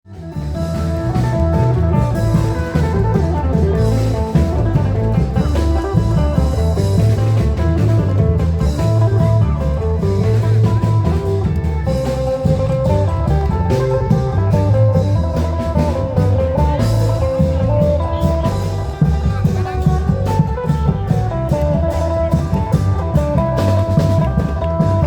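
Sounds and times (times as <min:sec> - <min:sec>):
long drum beats: 0:00.1 - 0:25.0
plucked string melody: 0:00.1 - 0:25.0.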